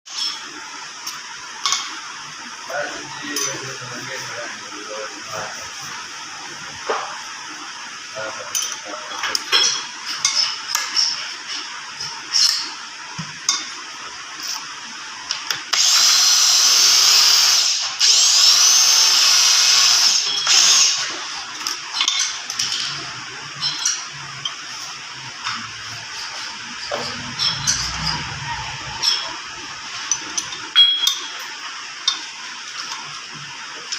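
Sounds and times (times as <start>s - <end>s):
high-pitched power tool polishing: 15.7s - 21.2s, 26.2s - 29.6s.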